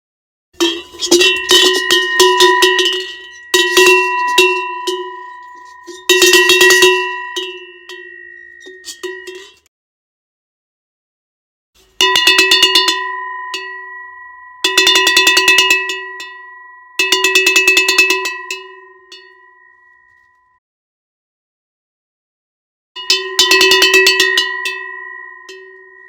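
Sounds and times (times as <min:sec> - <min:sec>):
cowbell shaken: 0:00.6 - 0:09.7, 0:12.0 - 0:20.3, 0:23.0 - 0:26.0.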